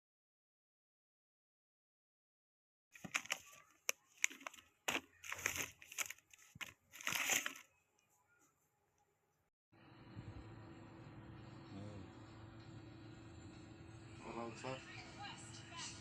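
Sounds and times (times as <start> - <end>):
crinkling and clicking close up: 3.0 - 9.1.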